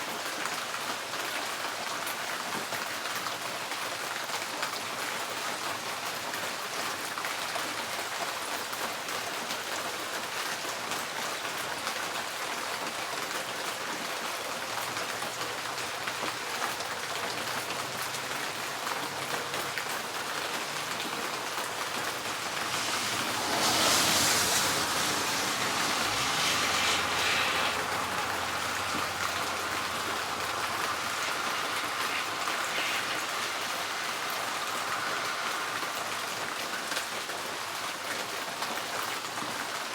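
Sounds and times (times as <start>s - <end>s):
rain on a tin roof: 0.0s - 39.9s
loud rushing swell: 19.6s - 37.6s
low rumble: 21.6s - 32.0s.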